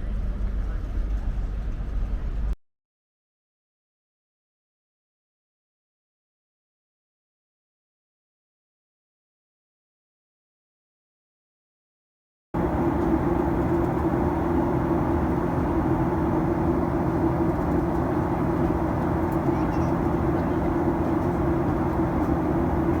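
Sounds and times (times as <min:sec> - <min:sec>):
vehicle in motion drone: 0:12.6 - 0:23.0.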